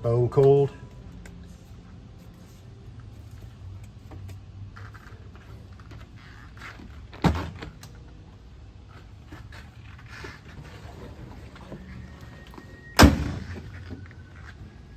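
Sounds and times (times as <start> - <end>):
car door shutting: 10.5 - 14.7.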